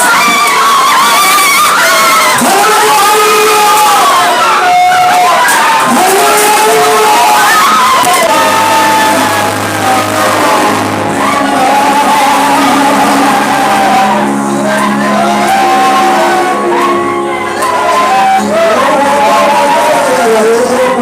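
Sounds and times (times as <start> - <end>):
congregation singing and shouting: 0.0 - 21.0
held instrumental chords: 3.8 - 21.0.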